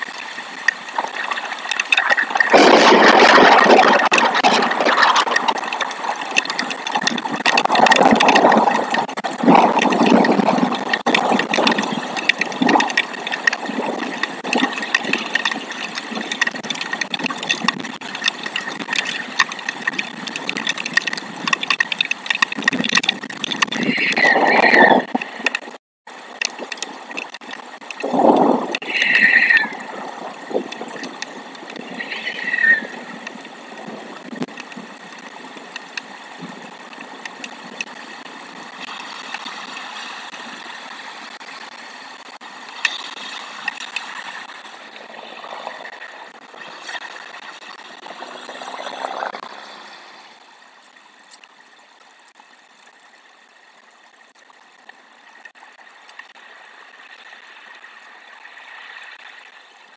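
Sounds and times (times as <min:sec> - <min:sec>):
wind gusting across microphone: 0:02.5 - 0:25.8, 0:26.6 - 0:42.5.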